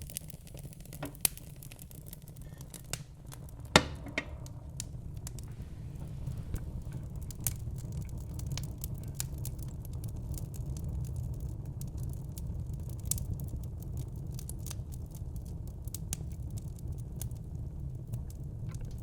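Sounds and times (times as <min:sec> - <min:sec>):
sharp pops of fire: 0:00.0 - 0:15.0
log fire crackling: 0:00.0 - 0:19.0
low rumble of flames: 0:00.0 - 0:19.0.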